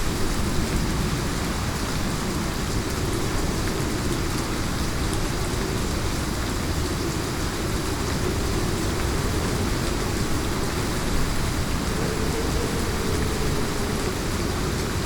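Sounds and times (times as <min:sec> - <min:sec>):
heavy rain: 0:00.0 - 0:15.0
deep low rumble: 0:07.9 - 0:15.0.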